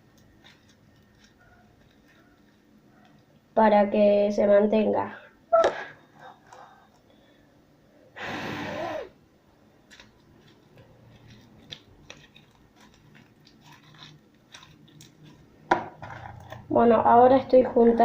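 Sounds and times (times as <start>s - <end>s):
sticky slime clicking and crackling: 9.8s - 15.5s.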